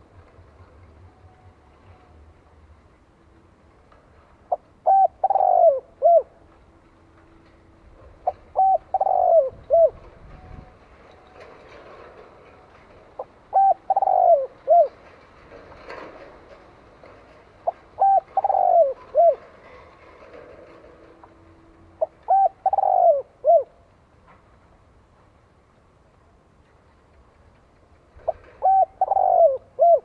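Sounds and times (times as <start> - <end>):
dove cooing: 4.5 - 6.4, 8.2 - 10.7, 13.2 - 15.2, 17.6 - 20.9, 22.0 - 23.8, 28.2 - 30.0.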